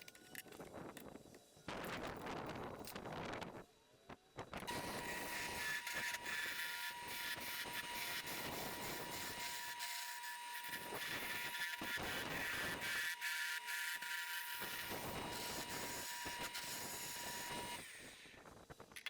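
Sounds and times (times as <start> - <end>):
lathe motor whine: 4.6 - 18.4.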